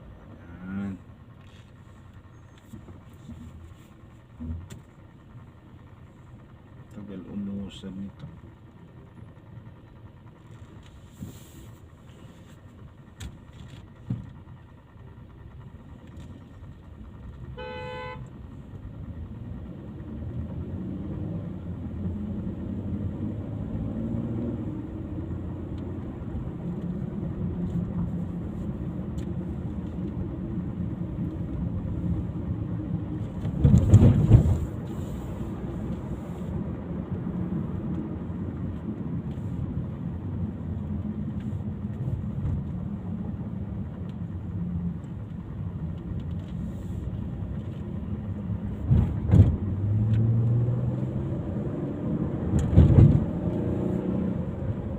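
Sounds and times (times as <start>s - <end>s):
car engine and road noise: 0.0s - 54.9s
loud thump: 48.9s - 49.6s.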